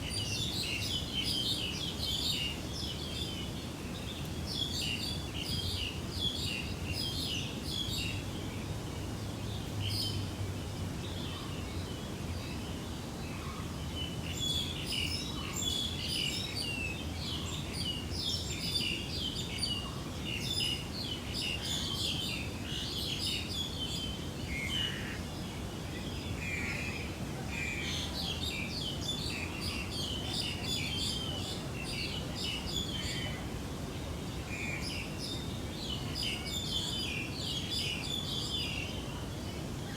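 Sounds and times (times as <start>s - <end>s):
low background noise: 0.0s - 39.9s
small birds chirping: 9.2s - 39.9s.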